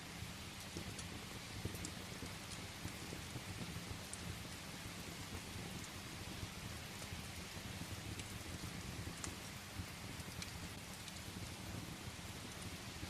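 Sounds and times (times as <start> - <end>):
rain hissing against a window: 0.0 - 13.0.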